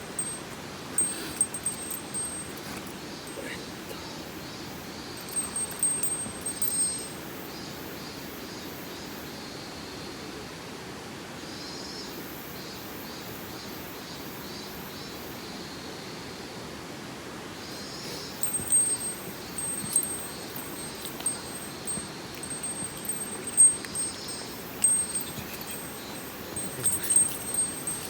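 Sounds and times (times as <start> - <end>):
metallic clinks: 0.0 - 4.2, 5.1 - 7.3, 17.7 - 28.0.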